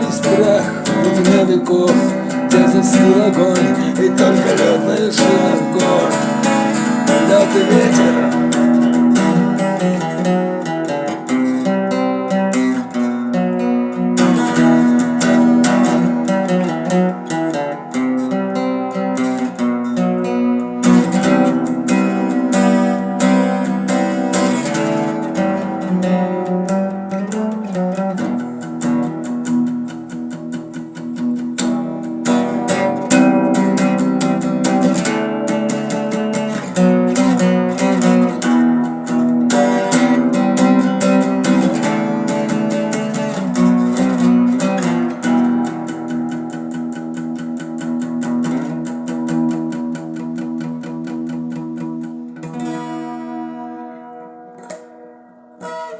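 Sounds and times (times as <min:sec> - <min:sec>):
acoustic guitar strumming chords: 0:00.0 - 0:55.9.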